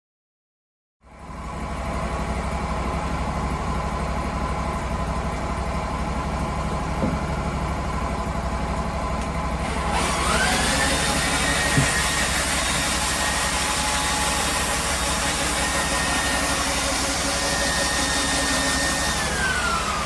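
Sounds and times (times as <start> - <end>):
sawmill engine running: 1.1 - 20.0
rising whine: 9.6 - 20.0.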